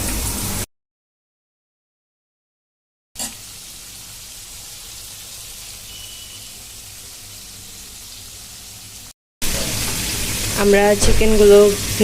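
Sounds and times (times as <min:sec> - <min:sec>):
chicken sizzling in hot oil: 0:00.0 - 0:00.7, 0:03.2 - 0:12.0.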